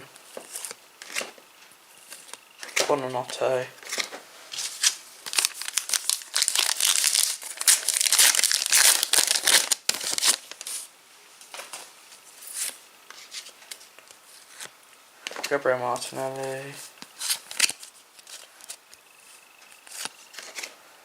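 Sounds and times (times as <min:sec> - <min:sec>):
wrapper and cards rustling: 0:02.0 - 0:10.9, 0:15.3 - 0:20.8
foil wrapper crinkling and tearing: 0:03.8 - 0:10.9, 0:17.2 - 0:18.8.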